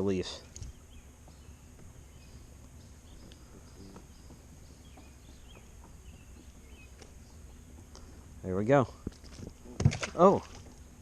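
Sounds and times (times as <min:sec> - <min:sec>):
high insect drone: 0:00.0 - 0:08.4.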